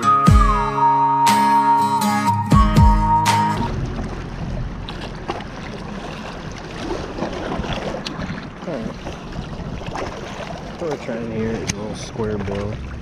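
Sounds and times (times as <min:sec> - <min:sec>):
strummed acoustic guitar: 0:00.0 - 0:03.9
lake shore noise: 0:00.0 - 0:13.0
wind on microphone: 0:06.4 - 0:10.8.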